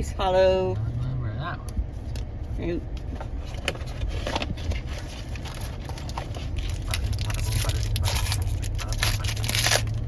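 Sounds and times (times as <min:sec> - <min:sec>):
car cabin rumble: 0:00.0 - 0:10.0
trading cards and wrapper crinkling: 0:03.0 - 0:10.0.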